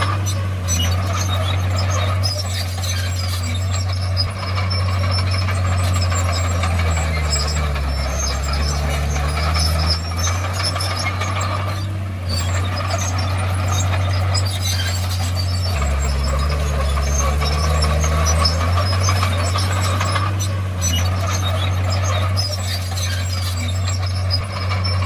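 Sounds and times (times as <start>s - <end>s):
bulldozer diesel engine droning: 0.0s - 25.0s
steel tracks squealing and clanking: 0.0s - 25.0s.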